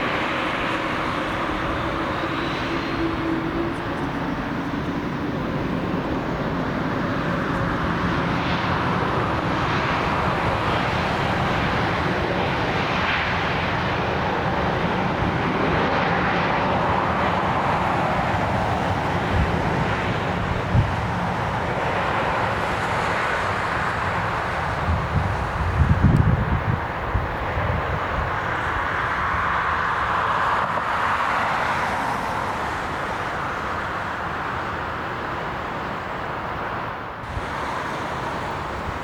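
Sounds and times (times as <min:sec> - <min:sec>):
faint rising whistle: 0:00.0 - 0:05.0
jet engines roaring: 0:00.0 - 0:39.0.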